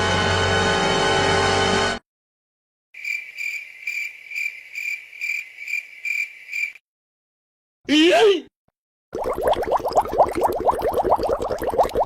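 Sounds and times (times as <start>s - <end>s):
crickets chirping: 3.0s - 6.8s.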